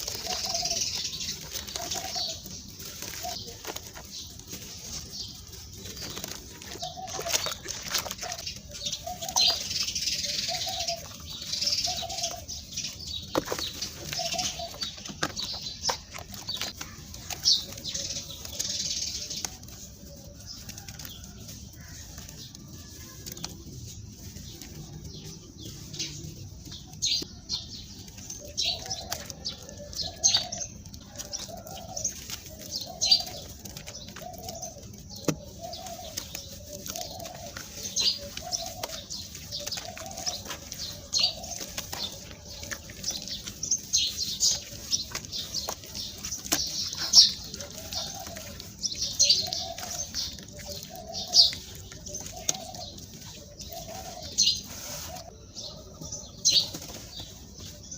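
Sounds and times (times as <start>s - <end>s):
dove cooing: 0.0s - 26.2s, 28.4s - 57.9s.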